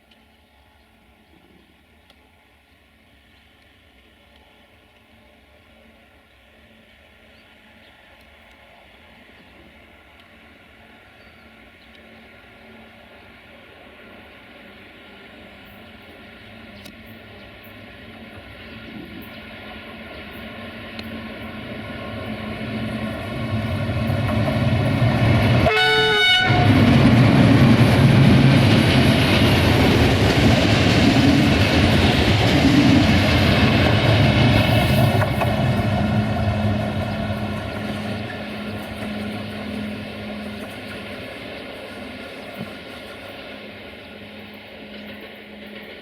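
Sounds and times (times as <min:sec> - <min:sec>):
train passing: 0:00.0 - 0:46.0
train horn toot: 0:25.6 - 0:26.9.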